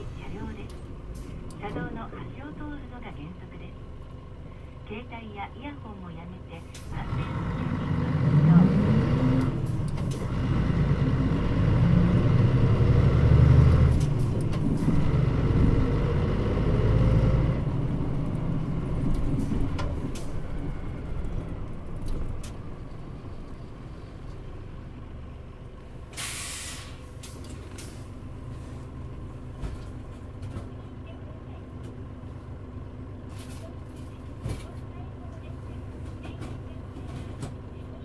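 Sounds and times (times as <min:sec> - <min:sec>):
bus diesel engine running: 0:00.0 - 0:38.0
air brakes hissing: 0:26.1 - 0:28.8.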